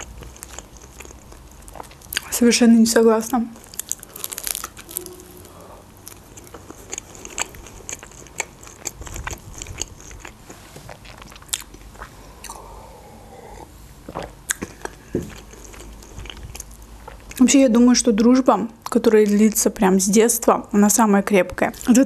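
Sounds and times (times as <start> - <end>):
wet chewing: 0.0 - 2.4, 3.5 - 13.7, 14.5 - 17.5
crisp crunches: 3.6 - 12.1.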